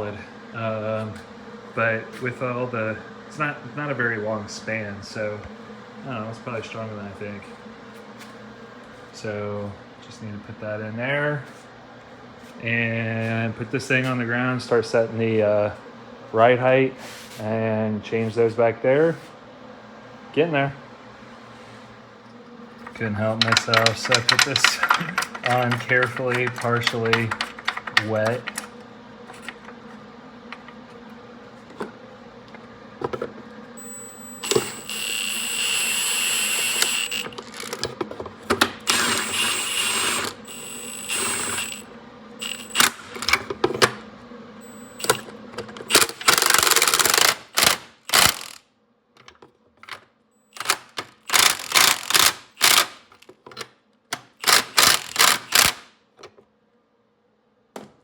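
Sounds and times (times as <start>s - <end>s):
power tool bursts with whine: 33.8s - 37.7s, 38.8s - 43.4s, 44.6s - 45.3s, 45.9s - 48.6s, 50.5s - 53.0s, 54.4s - 55.9s.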